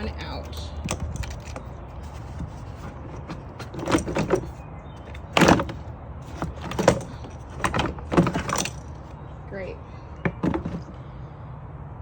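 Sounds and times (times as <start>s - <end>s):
plastic knocks and scrapes: 0.8s - 8.8s, 10.2s - 11.0s
plastic clatter: 0.8s - 8.9s, 10.2s - 11.0s.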